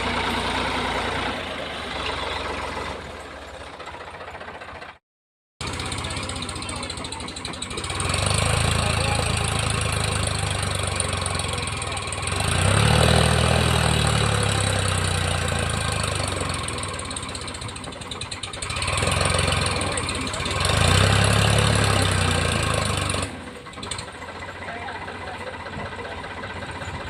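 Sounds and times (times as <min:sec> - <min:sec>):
diesel engine under load: 0:00.0 - 0:05.0, 0:05.6 - 0:27.0.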